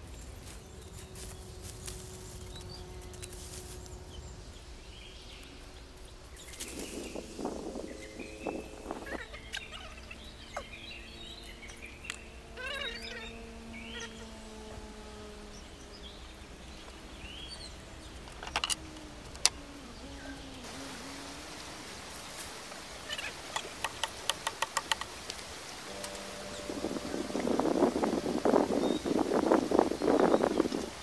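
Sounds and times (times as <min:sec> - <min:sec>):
birds chirping: 0:00.0 - 0:31.0
sharp clicks: 0:23.5 - 0:26.2.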